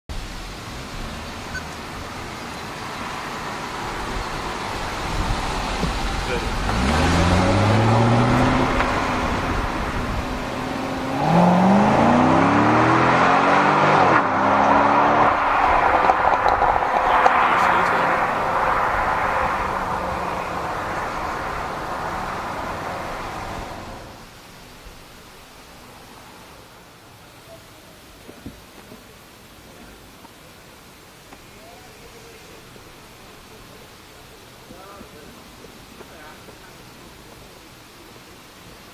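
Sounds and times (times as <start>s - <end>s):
car rumble: 0.1s - 26.6s
traffic hiss: 0.1s - 38.9s.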